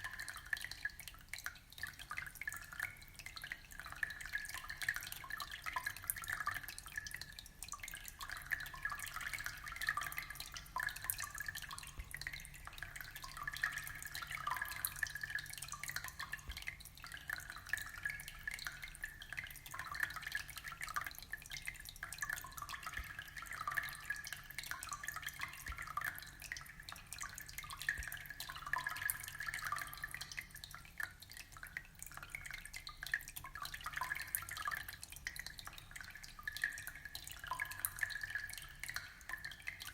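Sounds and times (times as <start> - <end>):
aquarium water trickling and dripping: 0.0 - 39.9.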